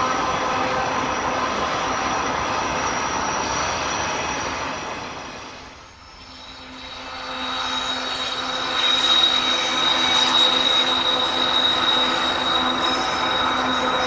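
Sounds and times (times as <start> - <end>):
diesel locomotives running: 0.0 - 14.0
wheels squealing on track: 5.9 - 14.0.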